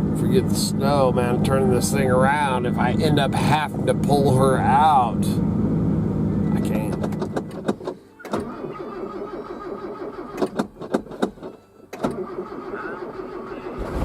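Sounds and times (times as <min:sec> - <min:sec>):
vehicle engine cutting off: 0:00.0 - 0:07.8, 0:08.4 - 0:14.0
engine cranking to start: 0:06.8 - 0:14.0
door and control clicks: 0:06.9 - 0:08.5.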